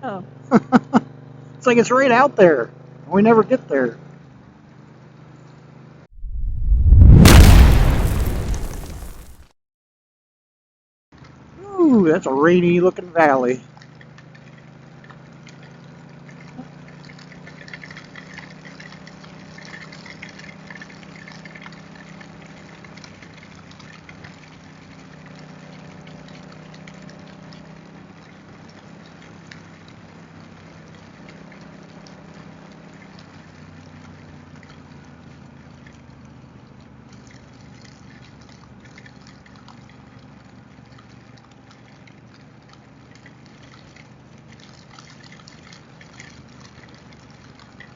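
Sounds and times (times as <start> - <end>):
rain hissing: 6.2 - 9.4
tyre spray on wet road: 39.9 - 47.9.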